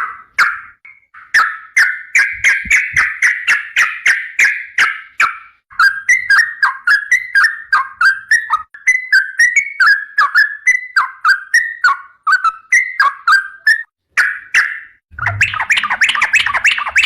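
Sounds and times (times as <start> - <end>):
bird singing harsh repeated notes: 0.1 - 17.0.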